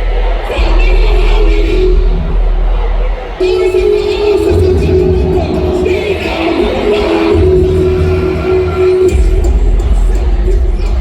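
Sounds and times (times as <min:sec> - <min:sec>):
heavy bass: 0:00.0 - 0:11.0
live concert music: 0:00.0 - 0:11.0
wavering melody line: 0:03.4 - 0:09.6.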